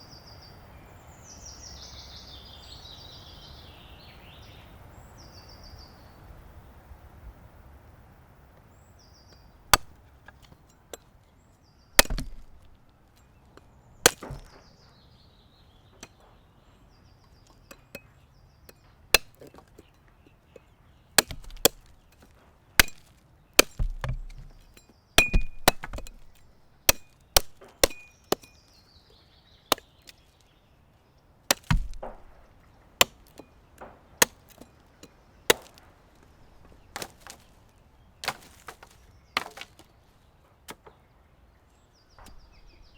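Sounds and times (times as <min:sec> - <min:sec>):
birds chirping: 0:00.0 - 0:06.9, 0:08.5 - 0:42.9
blade chopping wood: 0:09.7 - 0:11.1, 0:12.0 - 0:14.8, 0:19.1 - 0:19.9, 0:21.2 - 0:28.8, 0:29.7 - 0:30.4, 0:31.5 - 0:37.6, 0:38.2 - 0:39.9, 0:42.2 - 0:42.9.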